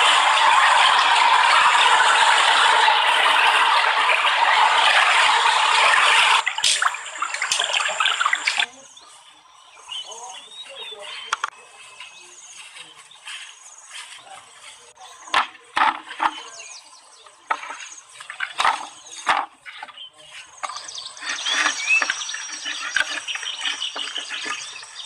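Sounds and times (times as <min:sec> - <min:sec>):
bird chirps: 0:06.6 - 0:25.0.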